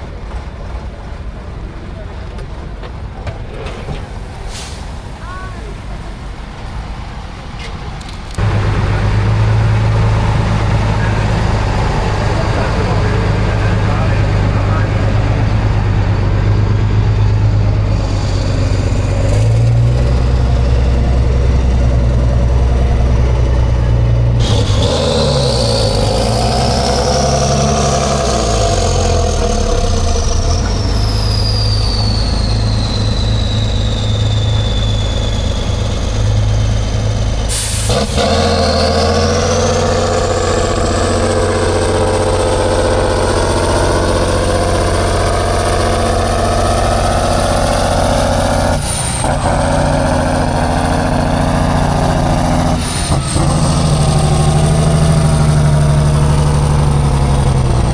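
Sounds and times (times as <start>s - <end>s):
diesel truck engine under load: 0.0s - 57.9s
high whistle: 24.7s - 40.2s.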